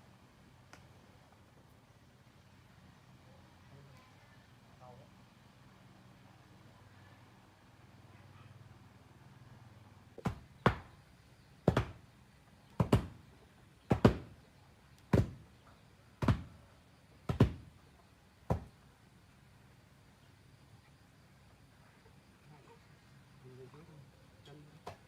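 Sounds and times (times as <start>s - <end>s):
knocks struck by hand: 11.7s - 12.0s, 12.8s - 13.2s.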